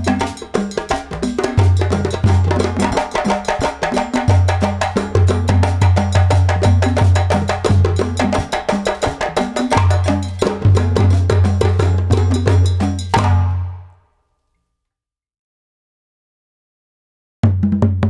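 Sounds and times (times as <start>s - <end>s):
wood-block percussion beat: 0.0s - 13.9s.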